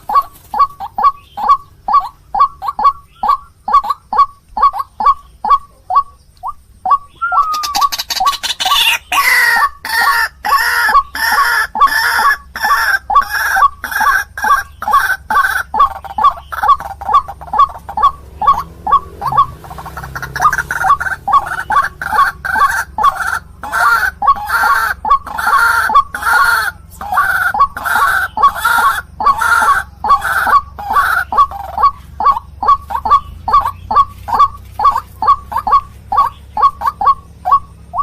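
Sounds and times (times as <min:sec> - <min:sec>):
bird croaking calls: 0:00.0 - 0:38.0
harsher bird calls: 0:00.0 - 0:38.0.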